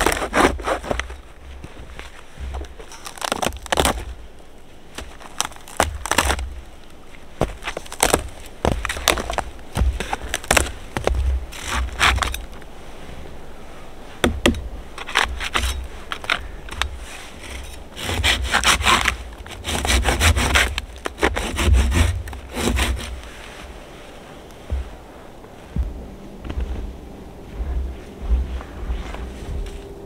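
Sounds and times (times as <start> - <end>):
wood being sawn by hand: 0.0 - 4.2, 14.3 - 23.8.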